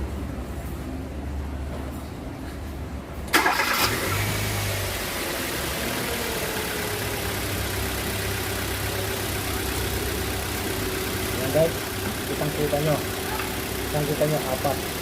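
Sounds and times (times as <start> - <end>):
car engine starting and idling: 3.2 - 15.0.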